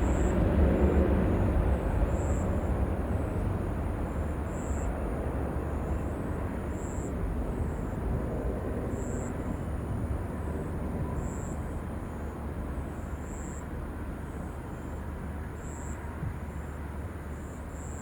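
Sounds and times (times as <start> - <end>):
jet engine rumble: 0.0 - 14.2.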